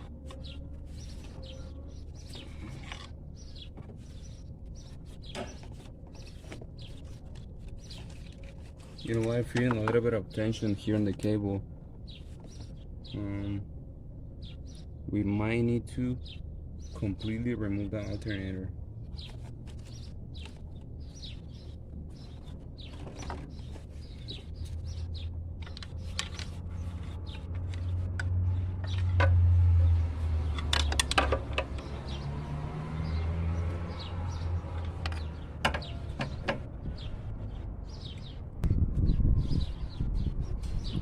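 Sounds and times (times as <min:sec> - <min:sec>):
small birds chirping: 0:00.0 - 0:29.2, 0:29.8 - 0:41.0
low steady rumble: 0:00.0 - 0:32.6.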